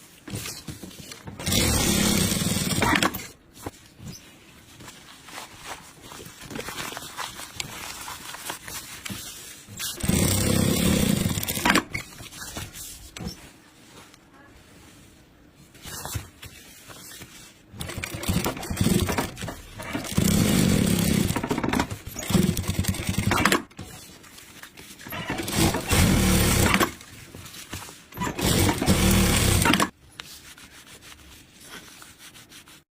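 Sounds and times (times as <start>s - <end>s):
sewing machine stitching: 1.4s - 3.3s, 9.9s - 12.0s, 17.8s - 23.7s, 25.1s - 27.0s, 28.2s - 29.9s.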